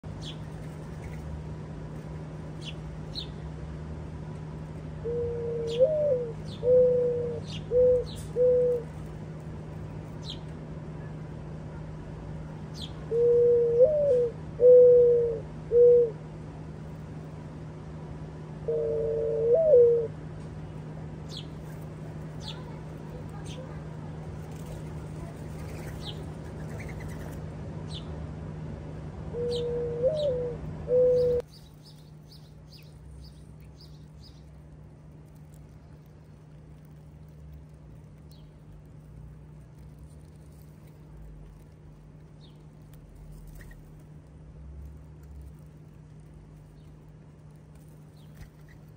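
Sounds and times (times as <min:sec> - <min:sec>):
sparrows chirping: 0:00.0 - 0:03.6, 0:04.8 - 0:15.9, 0:20.6 - 0:28.2, 0:29.3 - 0:44.2, 0:44.9 - 0:48.9
dove cooing: 0:05.0 - 0:09.0, 0:13.1 - 0:16.2, 0:18.6 - 0:20.2, 0:29.3 - 0:31.5.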